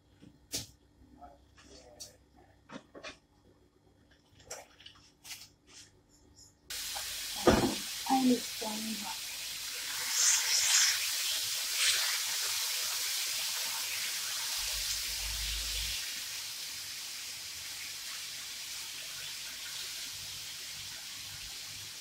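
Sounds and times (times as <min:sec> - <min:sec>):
chicken sizzling in hot oil: 0:06.7 - 0:22.0.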